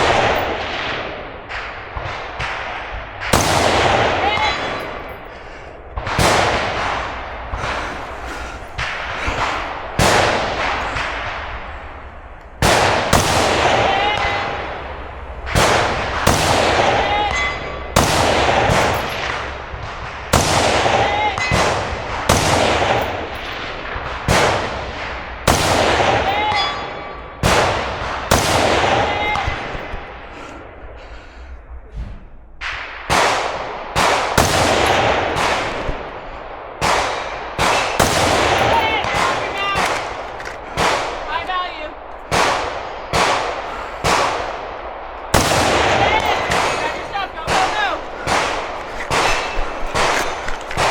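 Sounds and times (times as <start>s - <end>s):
gunshots with echo: 0.0s - 31.2s, 32.6s - 50.9s
steel target ringing: 13.5s - 19.4s.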